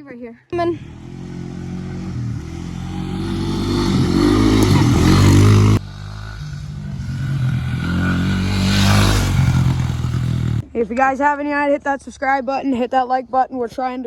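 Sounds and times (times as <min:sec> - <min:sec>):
dirt bike engine revving: 0:00.6 - 0:10.6.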